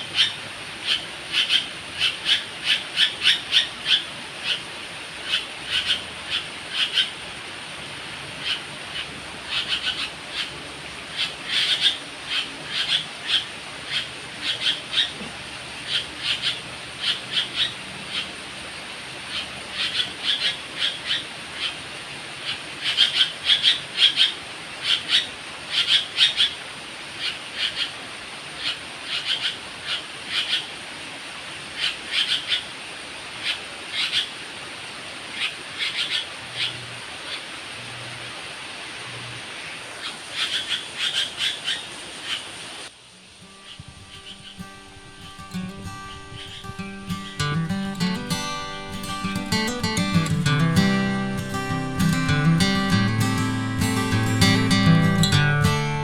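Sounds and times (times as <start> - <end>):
bird calls: 0.0 - 4.6, 5.2 - 7.1, 8.4 - 15.2, 15.8 - 18.3, 19.3 - 21.8, 35.4 - 37.4, 40.0 - 42.5, 43.5 - 56.0.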